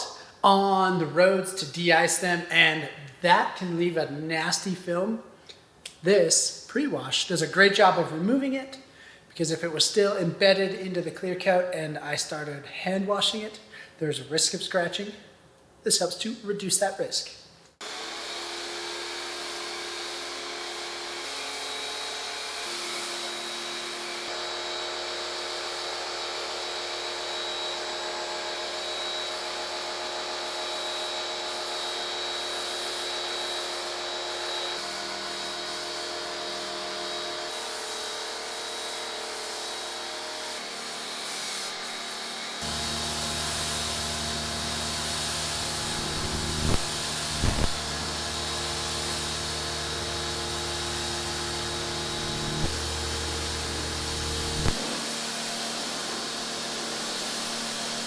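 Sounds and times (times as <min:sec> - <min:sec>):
pressure washer spraying: 0:29.3 - 0:58.0.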